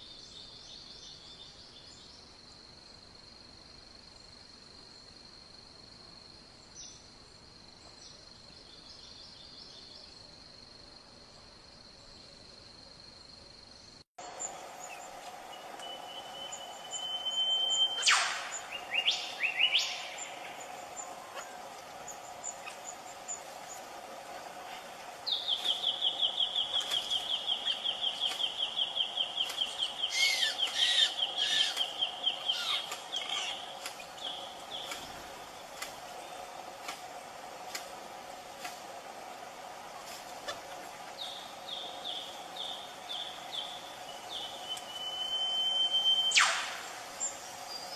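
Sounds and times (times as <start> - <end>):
steady background drone: 13.8 - 47.9
bird whistling calls: 15.8 - 21.5, 25.6 - 33.6, 44.6 - 46.9.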